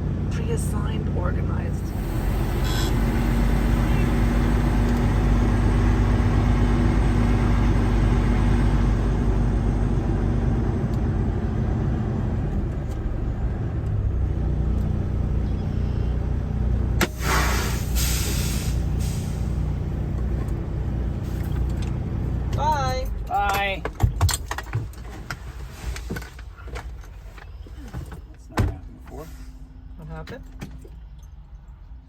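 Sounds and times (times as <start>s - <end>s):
diesel engine idling: 0.0s - 12.6s, 14.8s - 23.8s
air brakes hissing: 1.9s - 5.0s, 17.0s - 19.8s.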